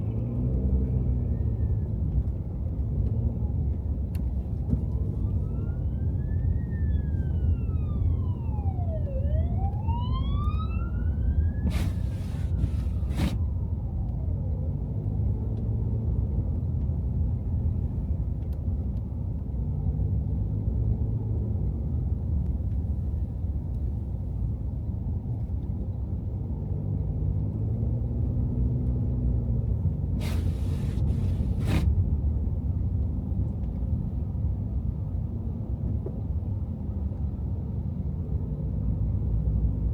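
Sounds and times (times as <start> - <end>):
car driving low rumble: 0.0 - 39.9
emergency siren wailing: 4.8 - 14.9.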